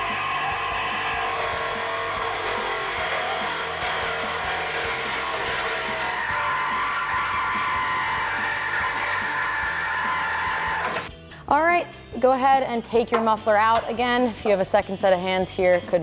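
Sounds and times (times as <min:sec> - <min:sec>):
reciprocating saw cutting metal: 0:00.0 - 0:11.1.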